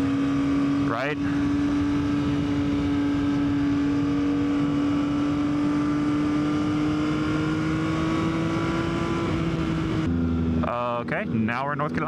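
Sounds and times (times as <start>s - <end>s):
wind noise rushing: 0.6s - 5.2s.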